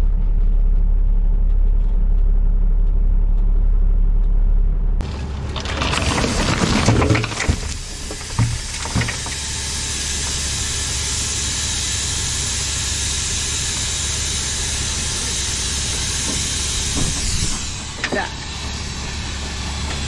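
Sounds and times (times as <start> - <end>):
diesel truck engine running: 0.0 - 20.0
loud even hiss: 7.3 - 20.0.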